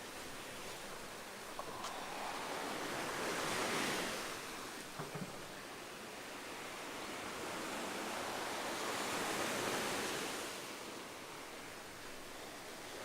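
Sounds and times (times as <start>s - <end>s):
ocean surf washing in: 0.0s - 13.0s.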